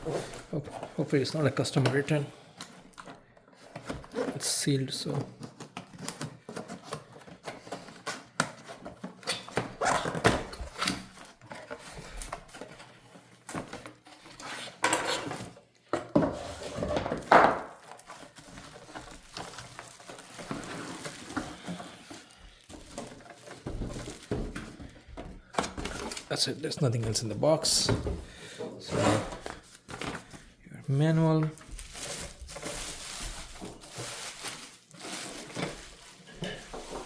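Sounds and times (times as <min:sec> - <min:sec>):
plastic parts knocking and clattering: 0:00.2 - 0:30.4
cardboard box being opened: 0:16.6 - 0:24.8
packaging rustling: 0:17.2 - 0:28.5, 0:29.2 - 0:37.0.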